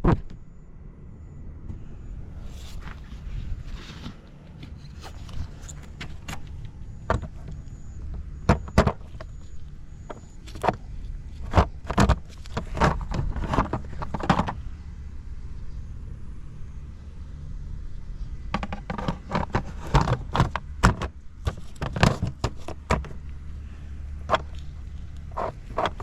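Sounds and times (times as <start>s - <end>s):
sharp clicks and knocks: 4.0s - 14.6s, 18.5s - 23.4s.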